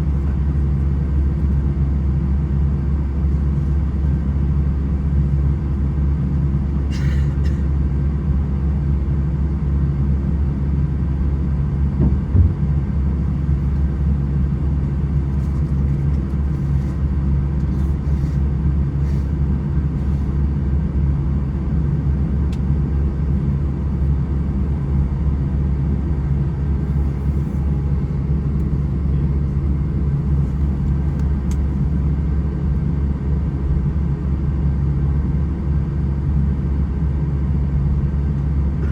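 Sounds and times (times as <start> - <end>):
airplane cabin engine hum: 0.0 - 38.9
brief thump: 12.0 - 12.8.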